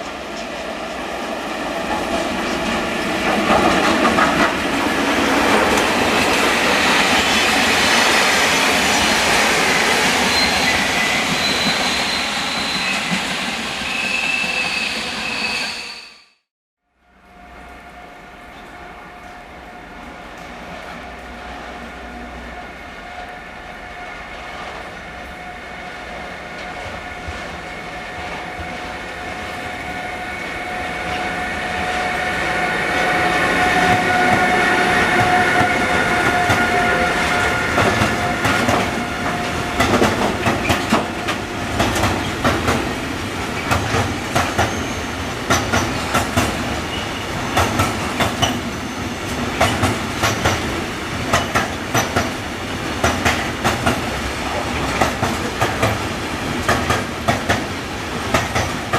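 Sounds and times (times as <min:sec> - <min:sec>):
wheels clacking over rail joints: 0:00.0 - 0:08.1, 0:33.8 - 0:48.7, 0:49.3 - 0:58.9
train whine: 0:00.0 - 0:58.9.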